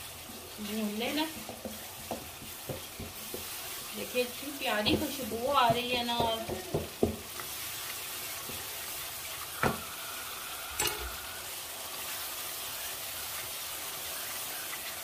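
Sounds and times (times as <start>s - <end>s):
sauce sizzling in oil: 0.0s - 15.0s
wooden spoon knocking pan: 1.3s - 3.6s, 4.7s - 7.5s.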